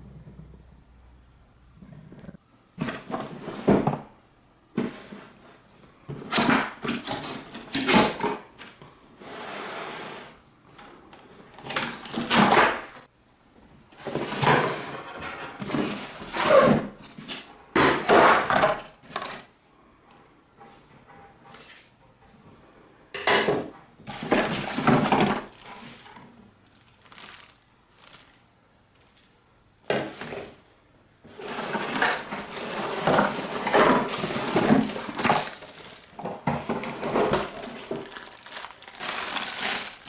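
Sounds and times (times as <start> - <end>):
packaging rustling: 24.1 - 28.5, 31.6 - 40.0.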